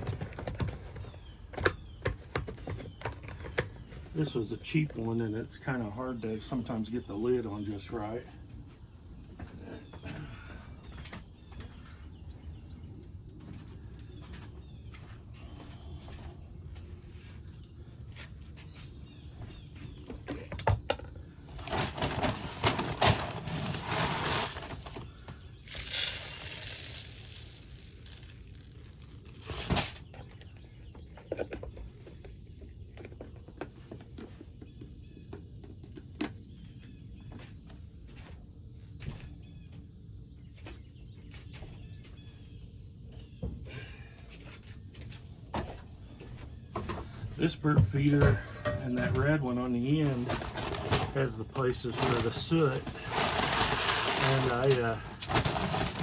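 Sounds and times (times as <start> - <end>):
seed pouring into feeder: 23.0 - 25.0, 25.7 - 30.0, 51.7 - 56.0.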